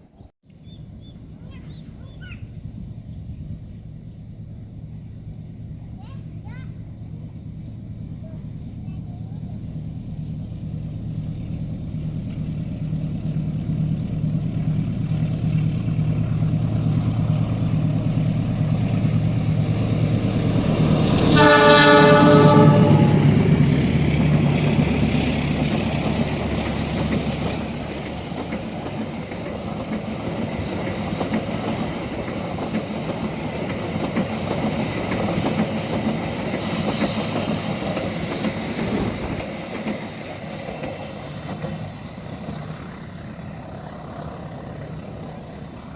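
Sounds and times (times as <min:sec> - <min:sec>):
locomotive engine drone: 0:03.0 - 0:45.9
train wheels clattering on rails: 0:09.7 - 0:45.9
train horn blast: 0:20.0 - 0:24.6.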